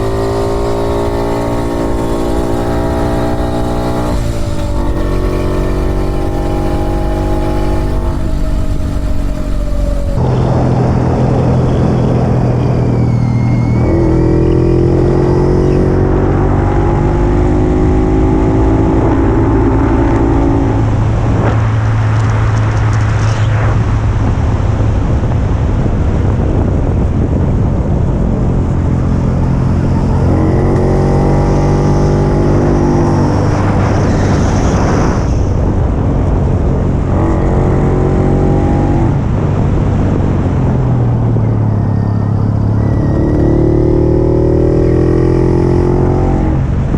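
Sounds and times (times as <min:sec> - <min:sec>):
two-stroke motorcycle engine: 0:00.0 - 0:10.2
wind rush: 0:00.0 - 0:43.0.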